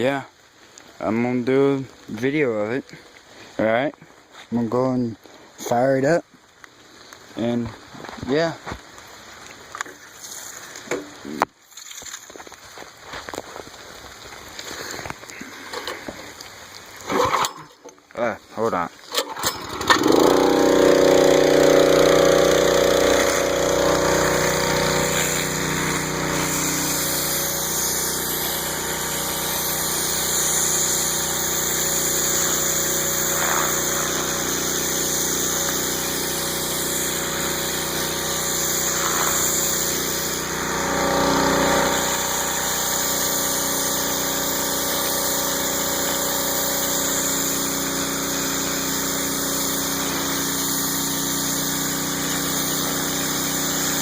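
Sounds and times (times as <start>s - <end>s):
pressure washer engine running: 17.1s - 17.6s, 19.1s - 54.0s.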